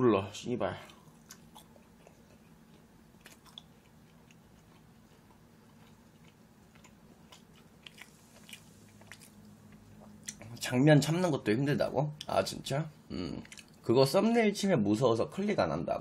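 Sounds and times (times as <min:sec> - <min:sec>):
low room hum: 0:00.0 - 0:16.0
quiet chewing clicks: 0:00.7 - 0:10.7, 0:13.2 - 0:13.9.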